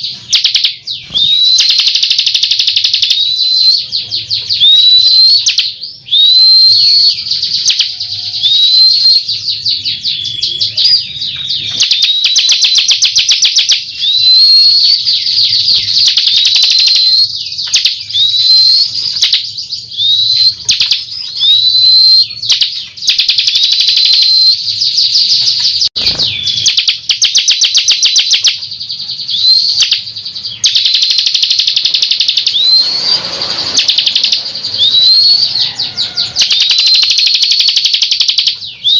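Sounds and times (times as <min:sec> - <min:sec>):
bird song with whistles and trills: 0:00.0 - 0:38.9.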